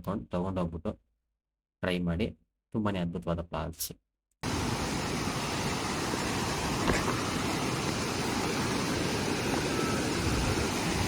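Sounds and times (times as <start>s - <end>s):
waterfall rushing: 4.4s - 11.0s.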